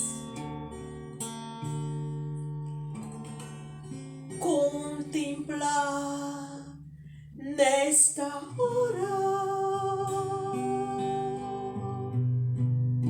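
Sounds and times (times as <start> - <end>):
person singing: 0.0 - 0.4, 4.4 - 6.8, 7.4 - 12.3
acoustic guitar chords: 0.0 - 13.0.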